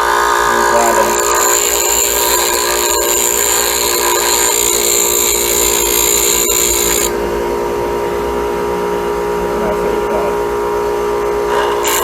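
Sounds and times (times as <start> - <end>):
bench grinder motor hum: 0.0 - 7.3, 11.8 - 12.0
chisel grinding on stone wheel: 0.6 - 7.1.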